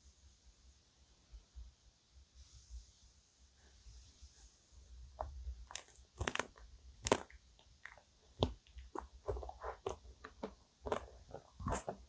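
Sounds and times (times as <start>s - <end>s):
chewing crunchy cake: 5.6s - 12.0s.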